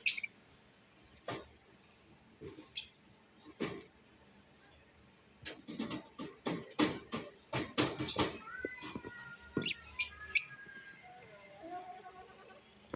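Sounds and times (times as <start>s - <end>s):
lovebirds chirping and whistling: 0.0s - 0.4s, 2.0s - 3.0s, 9.6s - 11.4s.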